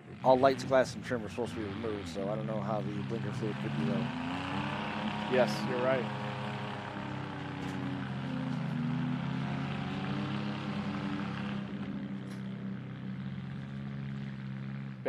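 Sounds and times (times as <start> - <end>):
mini truck engines droning: 0.0 - 15.0.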